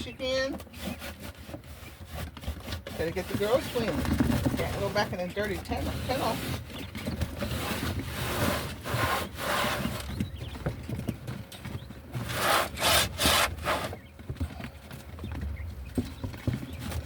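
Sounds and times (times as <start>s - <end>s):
rough scrubbing strokes: 7.4s - 10.0s, 12.2s - 13.9s.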